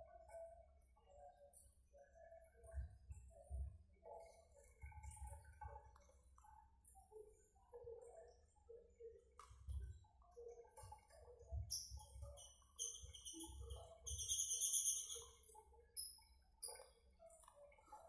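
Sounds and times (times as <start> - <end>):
small bird chirping: 11.7 - 15.4, 16.0 - 16.8.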